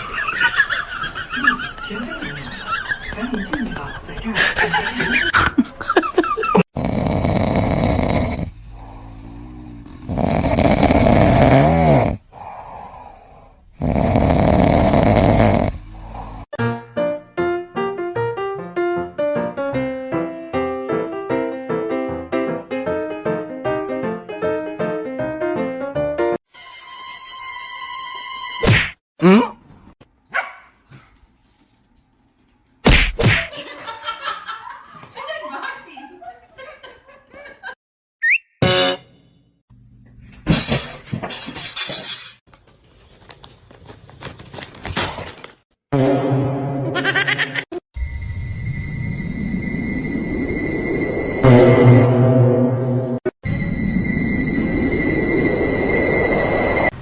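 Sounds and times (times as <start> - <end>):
pet snoring loudly: 6.6 - 16.6
whistling snore: 13.8 - 16.5
dog barking: 30.3 - 31.1.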